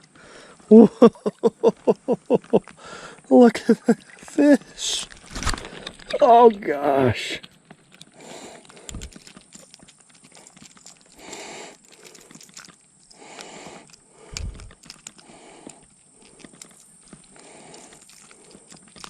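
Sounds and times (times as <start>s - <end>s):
small clicks: 7.4s - 19.0s.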